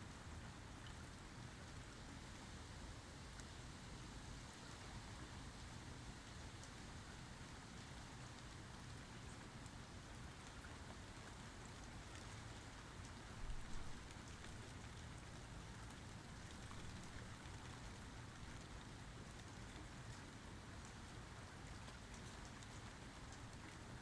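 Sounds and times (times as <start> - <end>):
rain falling: 13.3 - 19.4.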